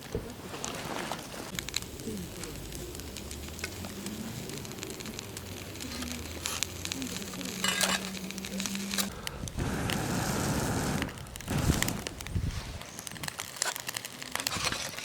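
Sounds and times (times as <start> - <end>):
campfire crackling: 0.0 - 15.0
food sizzling in cooker: 1.5 - 9.1.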